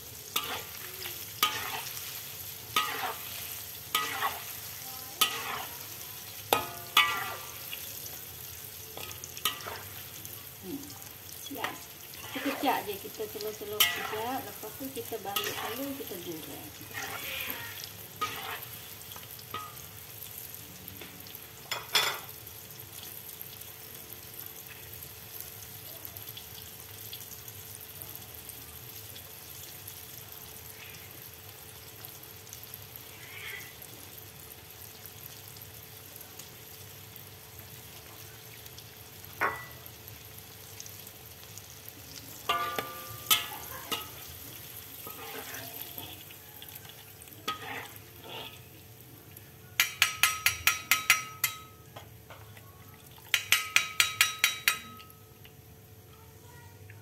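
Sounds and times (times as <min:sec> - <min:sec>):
deep-frying sizzle: 0:00.0 - 0:57.0
ladle clinking against wok: 0:39.4 - 0:39.8, 0:42.5 - 0:44.4, 0:49.8 - 0:52.4, 0:53.3 - 0:55.2.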